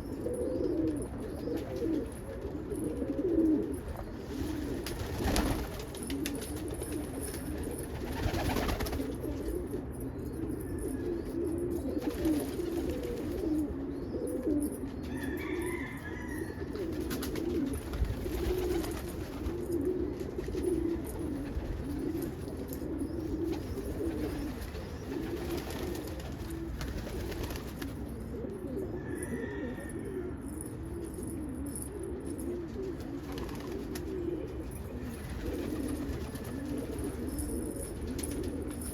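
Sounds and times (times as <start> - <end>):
pigeons cooing: 0.0 - 38.9.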